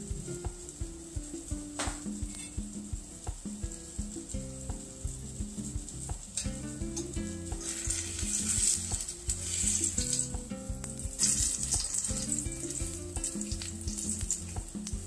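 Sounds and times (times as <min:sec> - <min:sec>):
patty sizzling in hot oil: 0:00.0 - 0:15.0
metal spatula scraping pan: 0:07.6 - 0:10.3.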